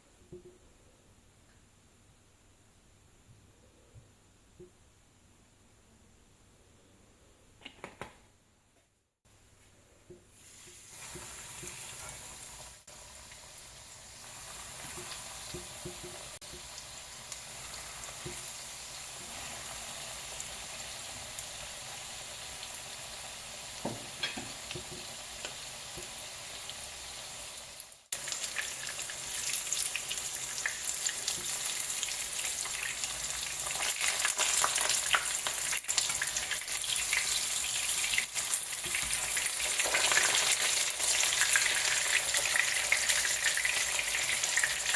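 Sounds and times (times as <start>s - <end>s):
fish sizzling in hot oil: 10.3s - 44.9s.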